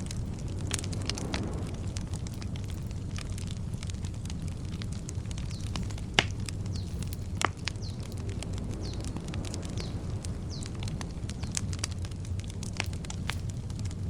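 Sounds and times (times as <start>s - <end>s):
campfire crackling and popping: 0.0s - 14.0s
low steady rumble: 0.0s - 14.0s
bird chirping: 5.4s - 10.8s.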